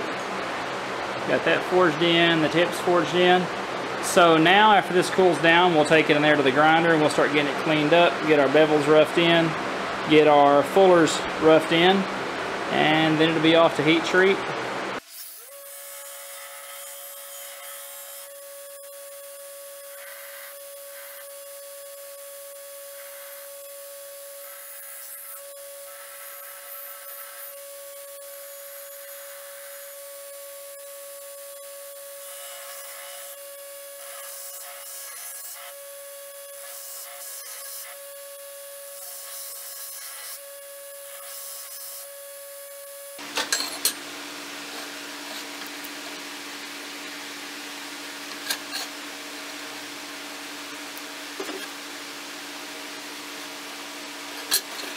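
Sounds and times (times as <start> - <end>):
belt grinder grinding steel: 15.0 - 44.0.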